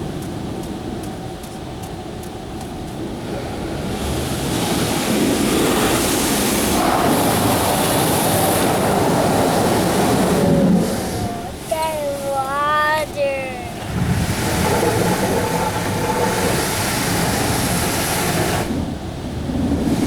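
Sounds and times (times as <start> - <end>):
car wash water spray and machinery: 0.0 - 20.0.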